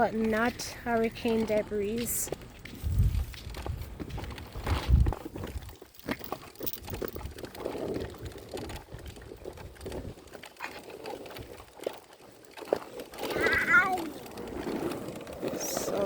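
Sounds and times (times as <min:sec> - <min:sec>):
dove cooing: 0:13.2 - 0:14.4.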